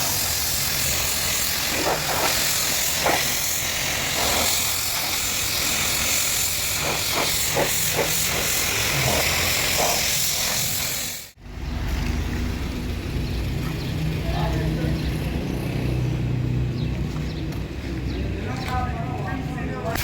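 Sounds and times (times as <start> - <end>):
pressure washer spray hissing: 0.0 - 11.4.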